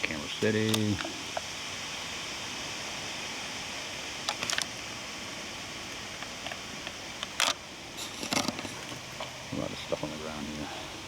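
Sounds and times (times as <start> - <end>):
wind through forest: 0.0 - 11.0.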